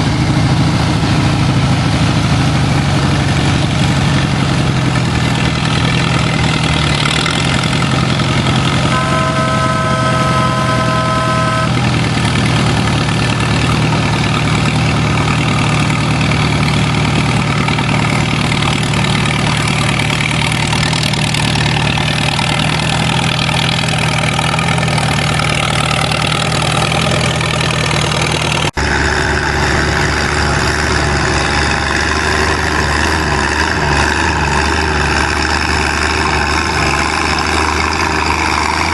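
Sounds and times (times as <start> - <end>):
deeper engine note: 0.0 - 38.9
tractor engine running: 0.0 - 38.9
steady high tone: 8.9 - 11.8.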